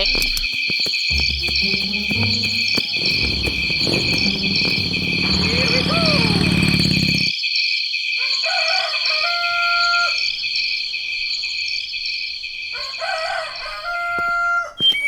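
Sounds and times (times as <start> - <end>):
crickets droning: 0.0 - 7.5, 8.8 - 14.4
rooster crowing: 0.5 - 7.3, 8.2 - 10.6, 12.7 - 14.9.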